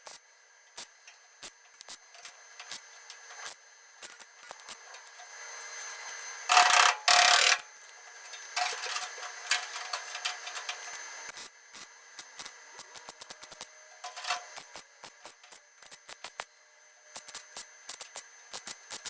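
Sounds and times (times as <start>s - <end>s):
welding crackling on sheet metal: 0.0s - 16.5s, 17.1s - 19.0s.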